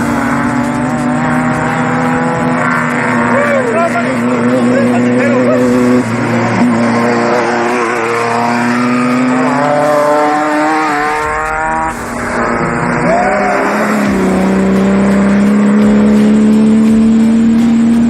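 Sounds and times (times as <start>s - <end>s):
race vehicle engine running hard: 0.0s - 18.0s.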